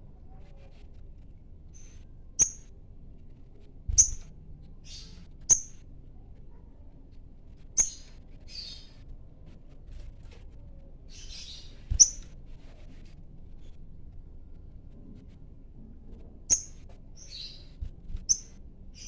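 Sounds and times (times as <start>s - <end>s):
bird chirping: 1.7s - 2.7s, 3.9s - 5.8s, 7.8s - 9.0s, 11.1s - 12.3s, 16.5s - 19.0s.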